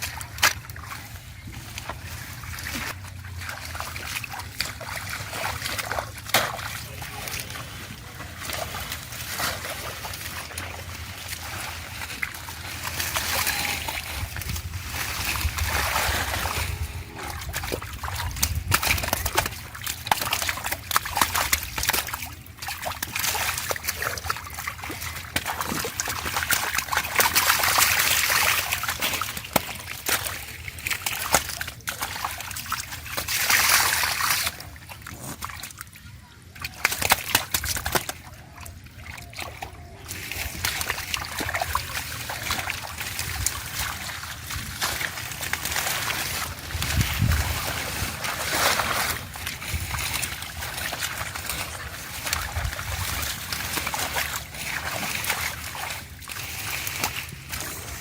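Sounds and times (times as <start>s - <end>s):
water splashing and sloshing: 0.0s - 58.0s.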